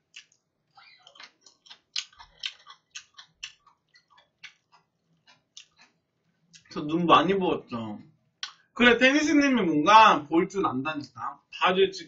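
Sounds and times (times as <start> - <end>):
person chewing food: 0.0 - 6.7.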